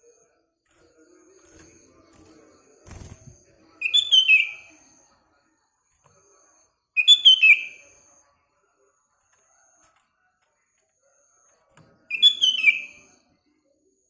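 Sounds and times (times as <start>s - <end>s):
bulbul singing: 3.8s - 4.8s, 7.0s - 7.9s, 12.1s - 13.2s
faint high bird whistles: 3.8s - 4.9s, 7.0s - 7.9s, 12.1s - 13.2s.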